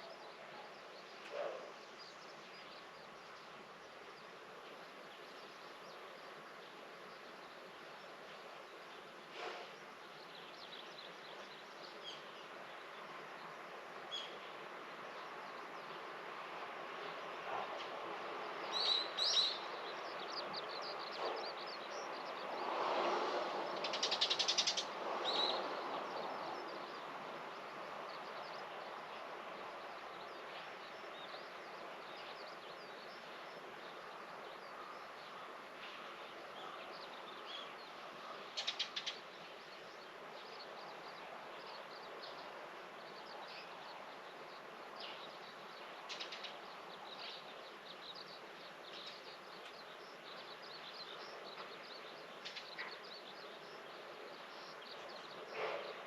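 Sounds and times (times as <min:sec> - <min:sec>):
small birds chirping: 0:18.6 - 0:23.1, 0:23.7 - 0:56.0.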